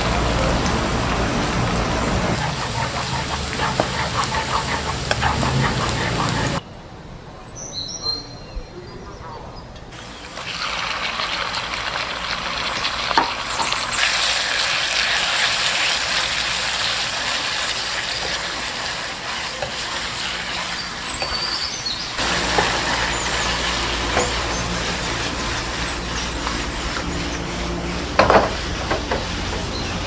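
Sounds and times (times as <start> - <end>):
food sizzling in a pan: 0.0 - 6.6, 10.0 - 30.0
utensil clicking against pan: 2.4 - 6.5.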